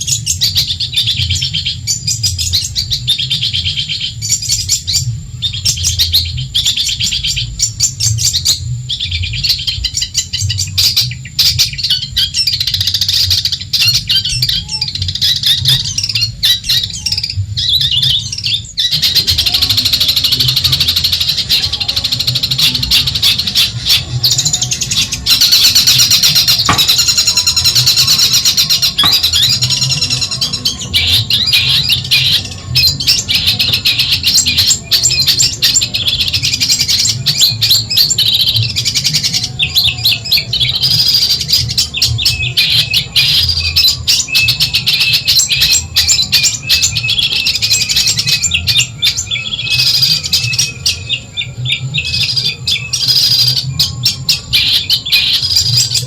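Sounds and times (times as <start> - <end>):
bird chattering chirps and whistles: 0.0 - 56.0.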